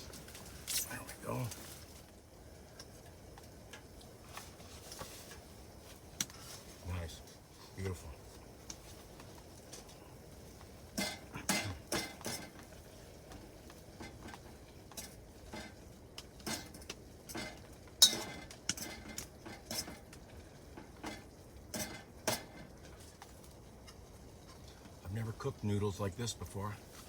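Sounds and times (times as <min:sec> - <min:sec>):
utensils clinking against dishes: 0:11.0 - 0:12.5, 0:16.4 - 0:20.0, 0:20.9 - 0:22.6.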